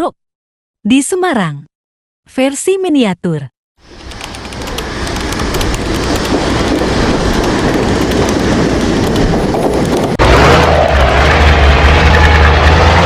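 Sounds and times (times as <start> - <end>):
train rumbling: 3.8 - 13.0
train wheels clacking: 4.0 - 10.2.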